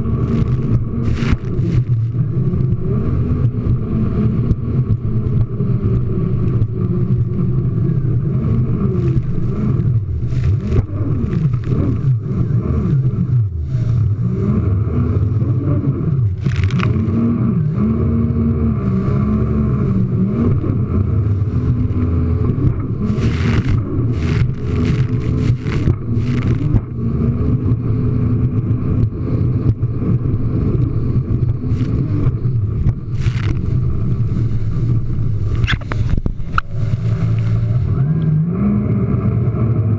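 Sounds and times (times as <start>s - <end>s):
water hits and spray: 0.0s - 3.8s, 8.9s - 12.4s, 16.3s - 17.3s, 19.9s - 27.3s, 31.1s - 37.9s
jet ski engine revving: 0.0s - 39.9s.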